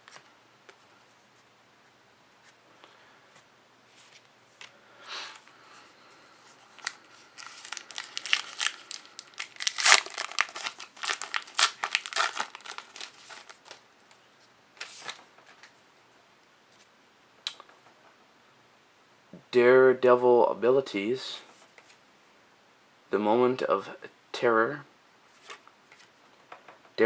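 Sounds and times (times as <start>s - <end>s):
card pack wrapper tearing: 6.8s - 13.8s.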